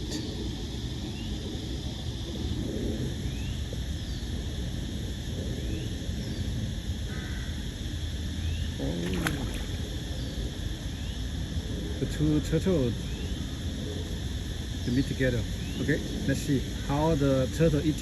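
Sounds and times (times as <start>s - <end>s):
insect drone: 0.0s - 18.0s.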